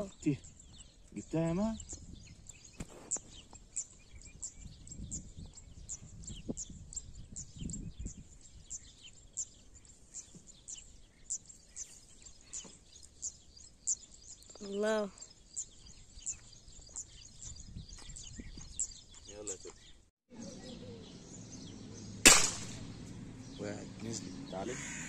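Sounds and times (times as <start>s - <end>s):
small bird chirping: 0.0s - 25.0s
low rumbles: 20.3s - 25.0s.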